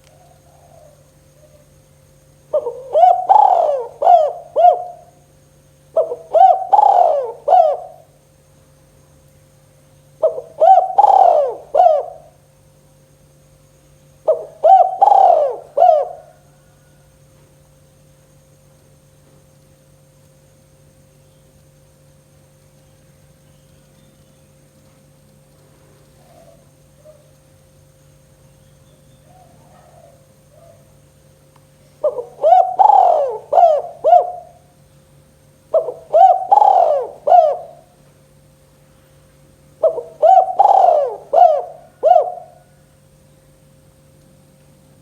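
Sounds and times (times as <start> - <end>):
dove cooing: 0.0 - 1.8, 2.5 - 5.2, 5.9 - 8.2, 10.2 - 12.4, 14.2 - 17.0, 26.1 - 27.4, 29.2 - 31.0, 31.9 - 34.8, 35.7 - 38.0, 39.7 - 42.9
steady electrical hum: 0.0 - 45.0.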